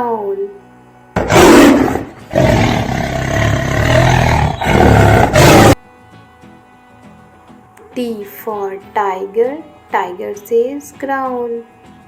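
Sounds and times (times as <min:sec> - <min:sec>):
tiger roaring and growling: 0:01.2 - 0:05.8.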